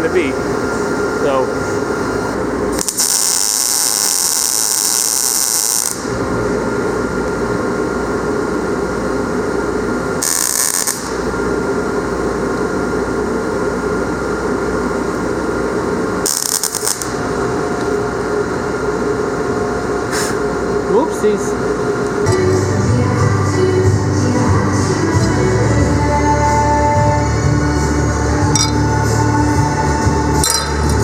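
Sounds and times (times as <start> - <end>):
steady mechanical noise: 0.0 - 31.0
welding arc sizzling and crackling: 2.2 - 6.2, 10.2 - 11.6, 15.2 - 18.0.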